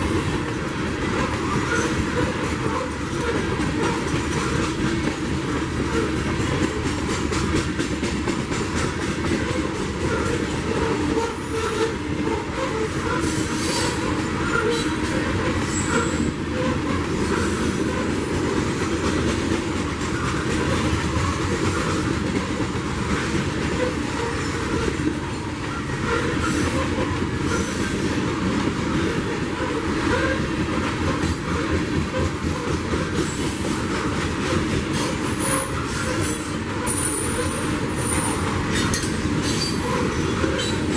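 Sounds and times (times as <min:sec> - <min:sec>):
train wheels clattering over rail joints: 0:00.0 - 0:40.9
high-pitched wheel squeal: 0:12.6 - 0:17.6, 0:35.0 - 0:40.9.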